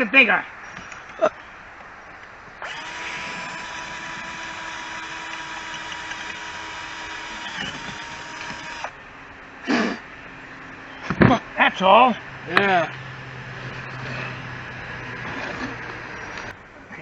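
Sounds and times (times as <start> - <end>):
electric drill running: 2.6 - 9.0.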